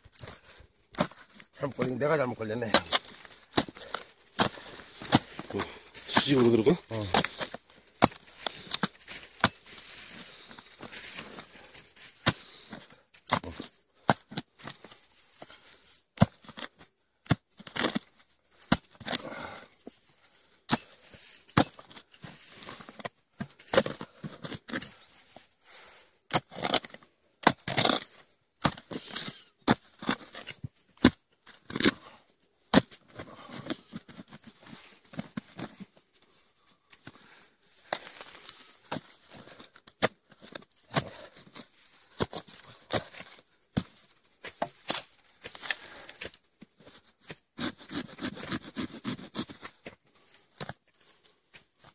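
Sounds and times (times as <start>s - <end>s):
shovel scraping: 0.1s - 19.6s, 20.7s - 25.4s, 26.3s - 35.9s, 37.0s - 50.0s
shovel blade striking soil: 0.2s - 11.5s, 20.7s - 22.0s, 26.3s - 32.0s, 37.8s - 46.4s.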